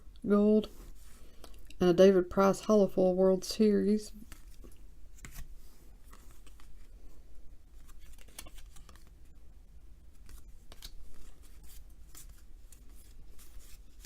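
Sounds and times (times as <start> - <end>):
cards flicking and swishing: 10.2 - 14.0.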